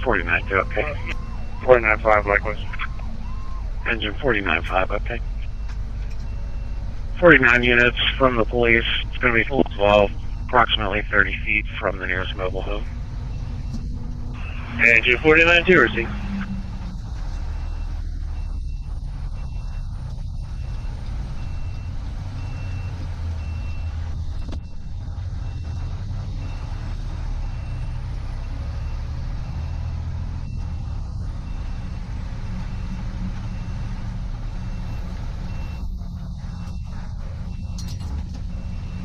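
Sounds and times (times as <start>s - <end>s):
high electronic beeps: 0.0s - 23.9s
truck engine low rumble: 0.0s - 39.0s.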